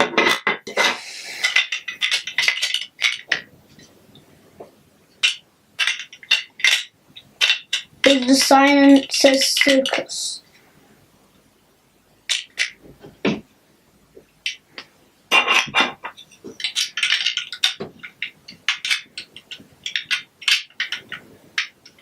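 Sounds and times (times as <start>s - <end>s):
plastic bricks clicking and clattering: 0.0s - 3.5s, 5.2s - 10.0s, 12.3s - 13.4s, 14.4s - 22.0s.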